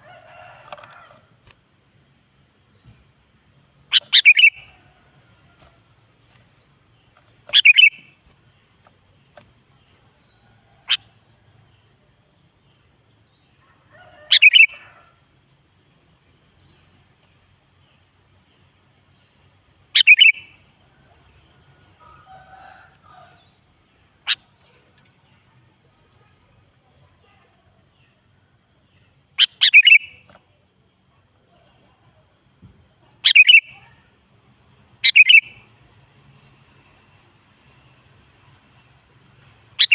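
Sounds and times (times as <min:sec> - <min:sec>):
bulbul singing: 0:03.8 - 0:06.4, 0:07.0 - 0:09.5, 0:20.0 - 0:22.7, 0:29.4 - 0:30.3, 0:31.5 - 0:34.0, 0:35.0 - 0:35.7.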